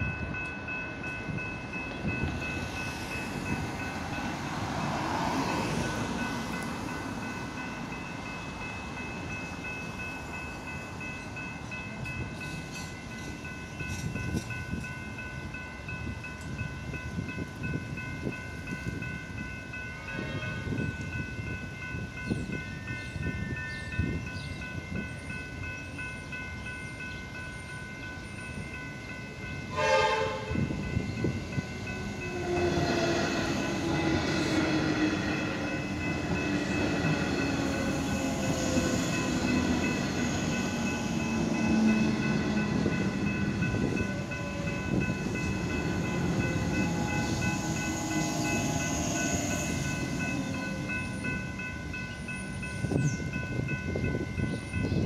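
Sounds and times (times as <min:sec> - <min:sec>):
level crossing bells ringing: 0:00.0 - 0:55.0
train wheels on rails: 0:00.0 - 0:55.0
train horn blast: 0:29.7 - 0:30.7, 0:32.0 - 0:34.7.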